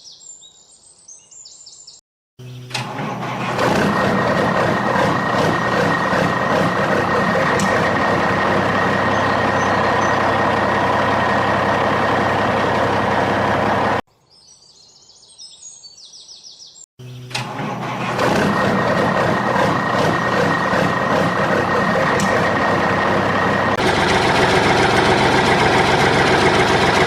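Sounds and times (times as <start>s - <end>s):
bird chirps: 0.0s - 2.7s, 9.0s - 10.2s, 14.2s - 17.3s
vehicle motor running: 2.4s - 14.0s, 17.0s - 27.0s.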